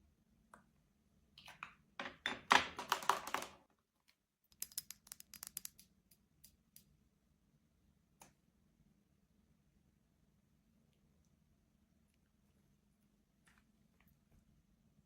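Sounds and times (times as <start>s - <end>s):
small sharp clicks: 4.5s - 6.9s.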